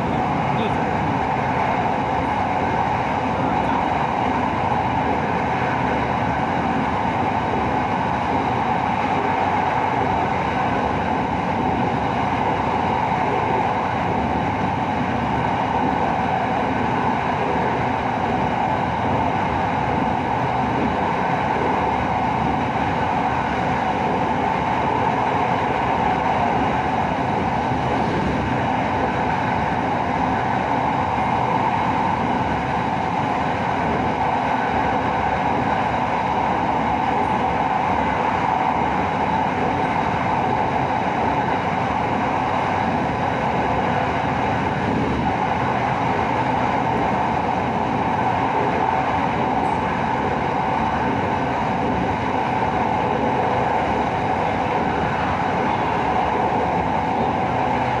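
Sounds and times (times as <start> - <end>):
train wheels rushing on rail: 0.0 - 58.0.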